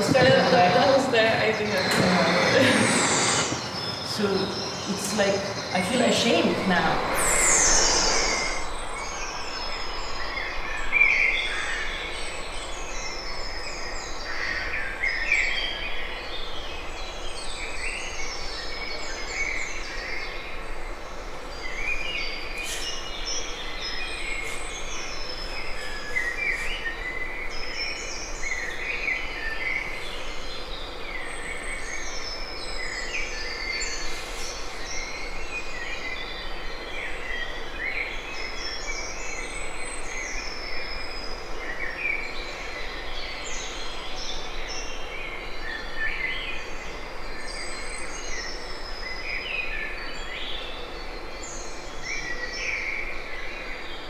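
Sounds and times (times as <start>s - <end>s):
background hiss: 0.0s - 14.1s
small birds chirping: 0.0s - 15.4s.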